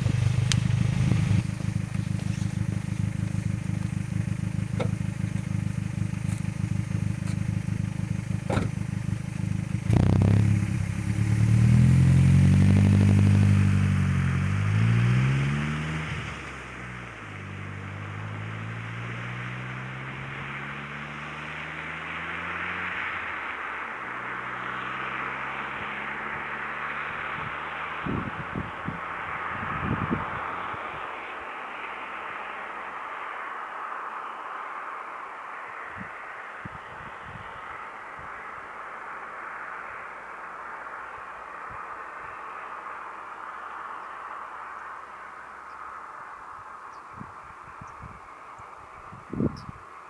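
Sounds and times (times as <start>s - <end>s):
car engine exhaust revving: 0.0s - 31.0s.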